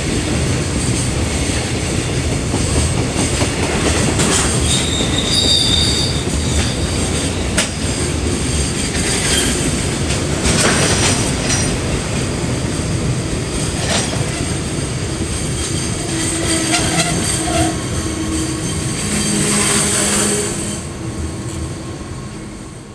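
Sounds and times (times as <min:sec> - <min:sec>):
rail joint clacks: 0:00.0 - 0:20.6
train wheels rumbling on rail: 0:00.0 - 0:22.9
wheels squealing: 0:04.4 - 0:07.4.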